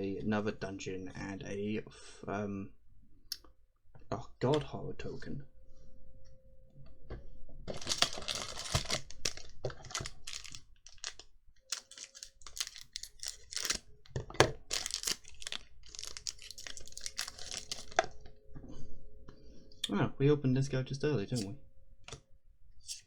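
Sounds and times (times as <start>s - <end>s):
cards and wrapping rustling: 7.7s - 18.3s.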